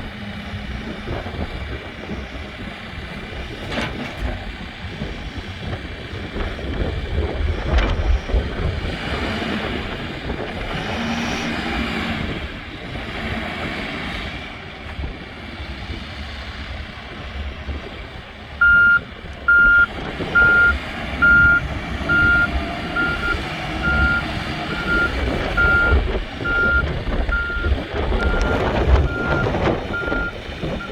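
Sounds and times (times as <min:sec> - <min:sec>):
backhoe engine rumbling: 0:00.0 - 0:30.9
reversing alarm beeping: 0:18.6 - 0:30.9.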